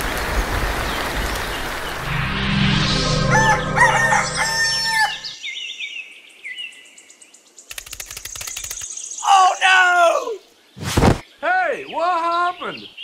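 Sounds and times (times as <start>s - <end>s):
low steady drone: 2.0s - 5.4s
rooster crowing: 3.2s - 5.4s
small birds chirping: 5.4s - 13.0s.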